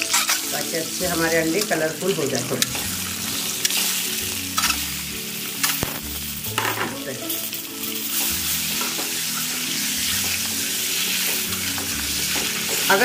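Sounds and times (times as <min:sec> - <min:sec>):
eggs sizzling in hot oil: 0:00.0 - 0:13.0.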